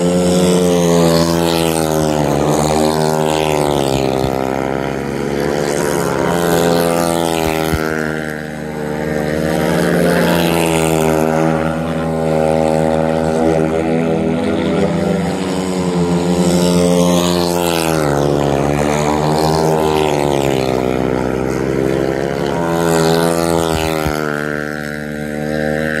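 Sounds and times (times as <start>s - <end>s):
motorcycle engine running hard: 0.0s - 26.0s.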